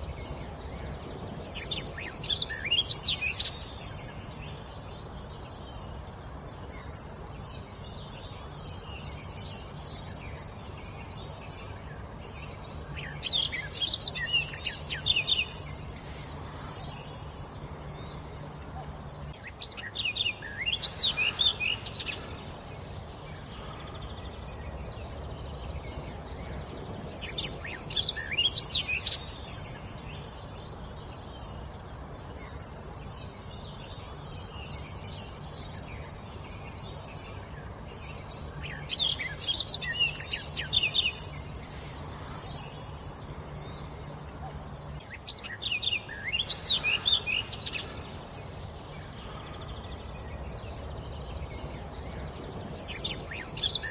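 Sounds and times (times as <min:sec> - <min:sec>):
low background hum: 0:00.0 - 0:53.9
songbird singing: 0:00.0 - 0:53.9.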